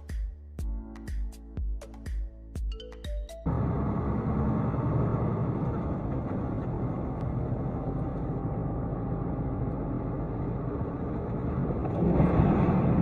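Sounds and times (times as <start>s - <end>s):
vehicle engine and road rumble: 3.5s - 13.0s.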